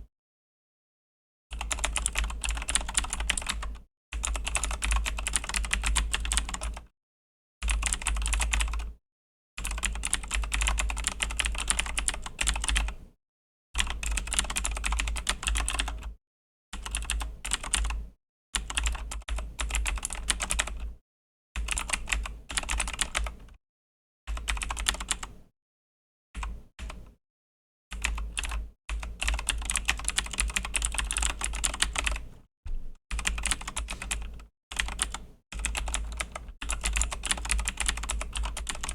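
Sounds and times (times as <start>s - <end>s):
mechanical keyboard typing clicks: 1.6s - 6.8s, 28.0s - 32.3s, 33.2s - 38.9s.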